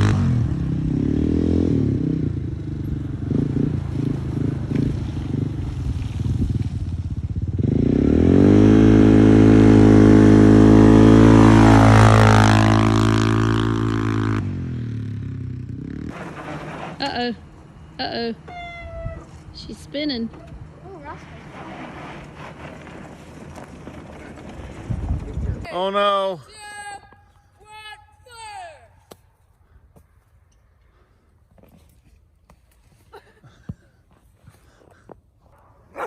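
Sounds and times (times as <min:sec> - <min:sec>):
atv engine revving: 0:00.0 - 0:25.9.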